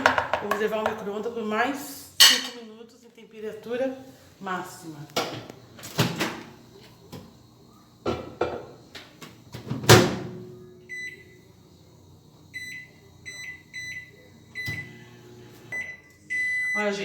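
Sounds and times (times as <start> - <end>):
microwave oven humming: 3.4 - 17.0.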